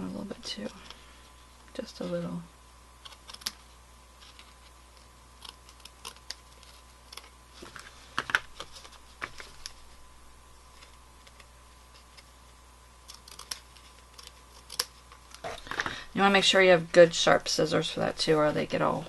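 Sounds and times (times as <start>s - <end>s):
scissors snipping: 3.0s - 3.6s, 5.4s - 7.3s, 13.0s - 15.5s.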